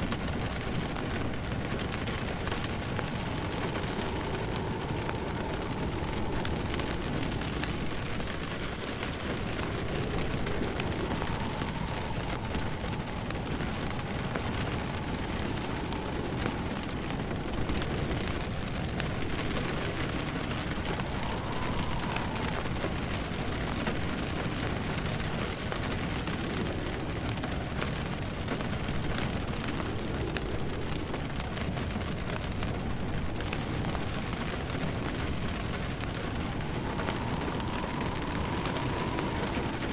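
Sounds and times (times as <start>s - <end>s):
rain pattering: 0.0s - 39.9s
wood fire crackling: 0.0s - 39.9s.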